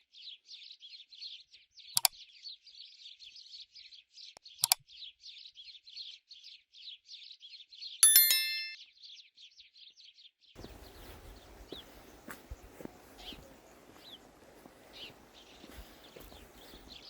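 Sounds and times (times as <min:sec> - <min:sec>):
ringing metallic ding: 0:08.0 - 0:08.8
bird chirping quickly: 0:10.6 - 0:17.0.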